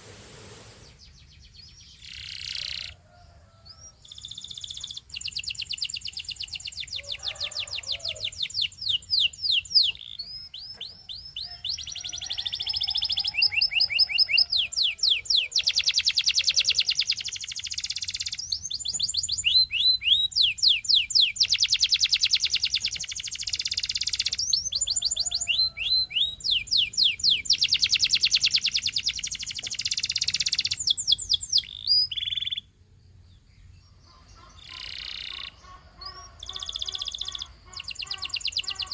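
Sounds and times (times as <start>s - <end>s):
canary singing trills: 0.8s - 38.9s.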